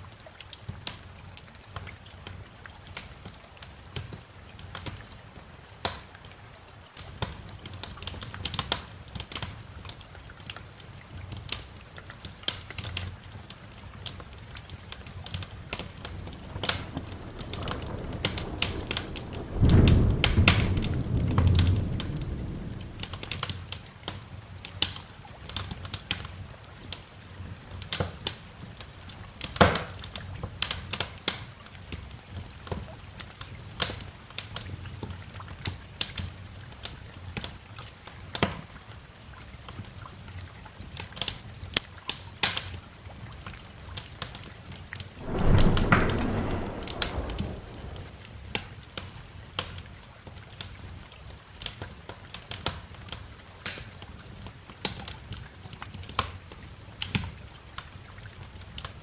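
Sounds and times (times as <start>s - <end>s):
rain hiss: 12.6s - 24.8s, 45.2s - 49.0s
wood fire crackling: 13.6s - 23.8s, 45.2s - 48.6s
thunder rumbling: 14.8s - 23.8s, 45.2s - 48.7s.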